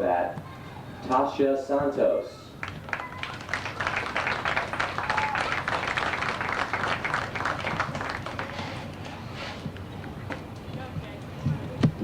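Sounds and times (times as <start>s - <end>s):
crowd applauding: 2.6s - 8.9s.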